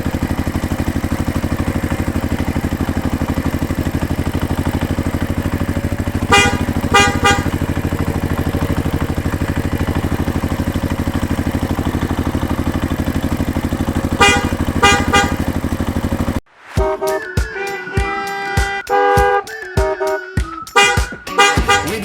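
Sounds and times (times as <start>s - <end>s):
tractor engine running: 0.0s - 17.2s, 18.8s - 22.0s
horn honking short toots: 5.8s - 8.8s, 13.8s - 16.2s, 16.8s - 22.0s.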